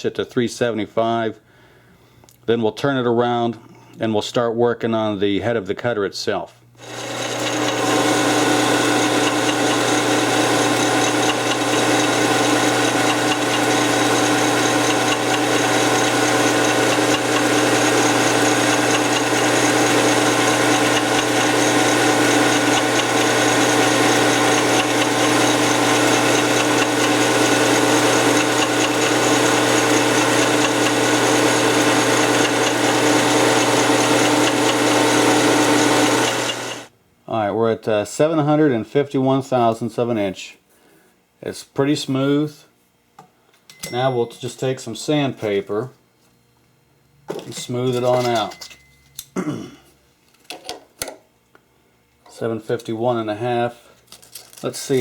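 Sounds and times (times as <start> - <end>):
metal lathe humming: 6.8 - 36.9.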